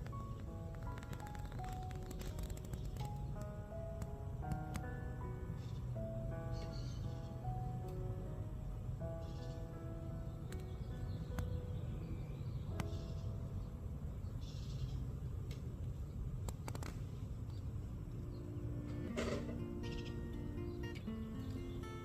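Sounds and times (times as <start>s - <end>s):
sharp clicks: 0.0s - 4.9s, 10.5s - 11.5s, 16.4s - 17.0s.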